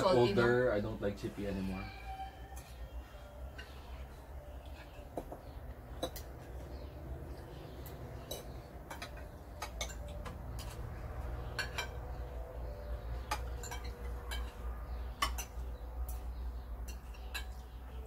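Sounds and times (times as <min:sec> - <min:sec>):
cutlery clinking on plates: 0:04.6 - 0:06.5, 0:07.8 - 0:12.4, 0:13.2 - 0:18.0.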